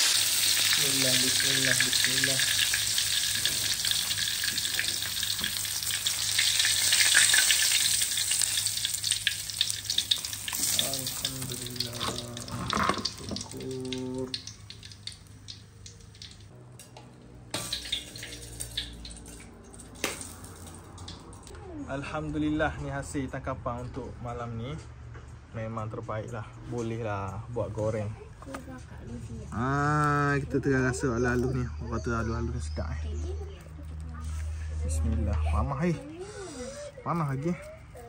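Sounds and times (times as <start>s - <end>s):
shrimp frying in hot oil: 0.0s - 16.5s, 17.5s - 19.4s.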